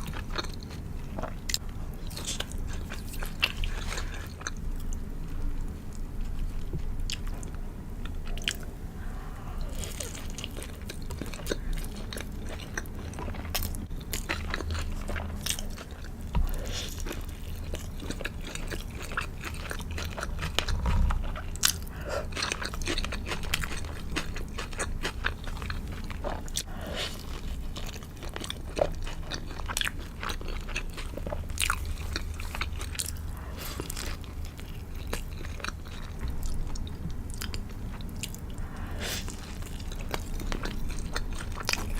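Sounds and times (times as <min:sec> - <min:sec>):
crunching fried food: 0:09.5 - 0:41.9.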